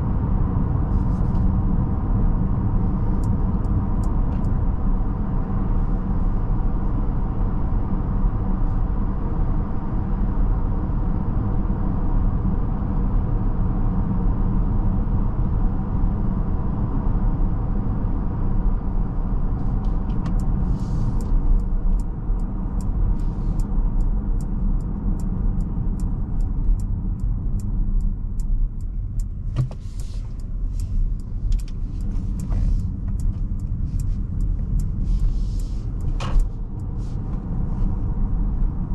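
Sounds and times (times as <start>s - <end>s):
road and tyre rumble in cabin: 0.0s - 38.9s
turn signal ticking: 20.0s - 38.0s.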